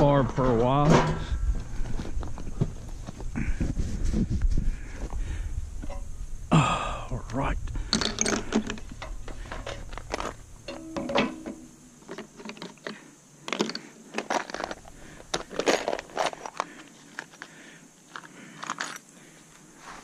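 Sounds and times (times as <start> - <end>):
metal parts clinking and clattering: 7.9 - 17.5, 18.1 - 19.0.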